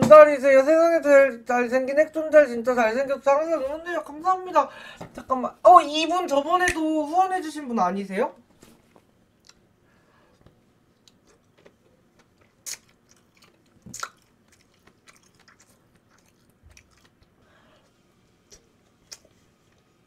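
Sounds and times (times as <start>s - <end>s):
biting and chewing rice cakes: 11.0s - 17.4s, 18.4s - 19.9s.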